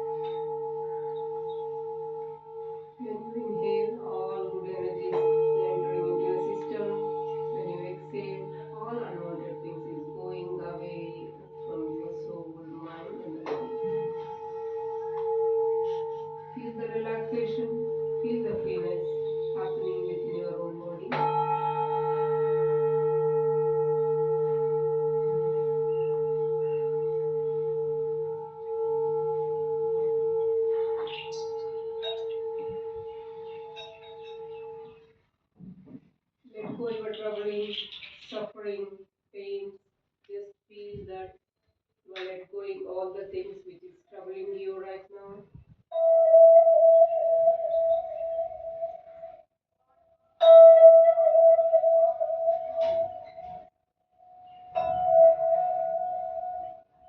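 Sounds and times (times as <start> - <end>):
singing bowls ringing: 0.0 - 35.1, 45.9 - 49.4, 50.4 - 53.7, 54.3 - 57.0.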